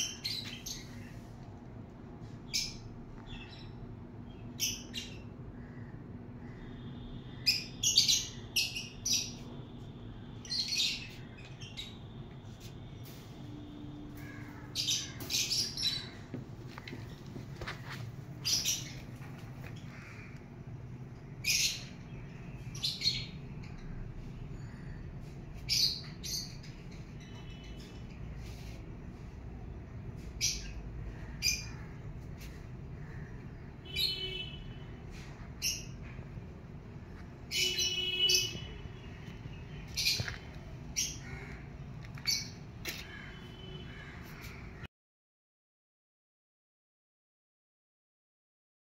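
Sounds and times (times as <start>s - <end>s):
birds chirping and squawking: 0.0s - 1.4s, 2.2s - 44.9s
bird chirping: 33.6s - 34.8s, 37.4s - 41.5s.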